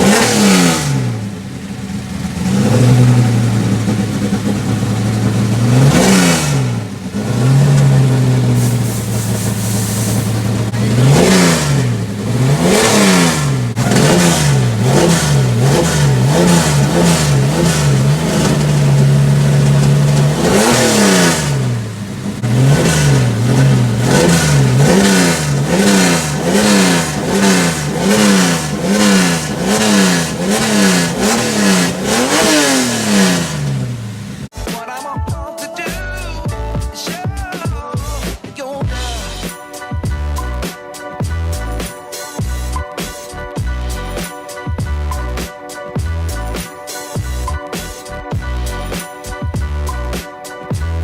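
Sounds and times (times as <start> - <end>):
car engine revving: 0.0 - 34.5
music: 34.5 - 51.0.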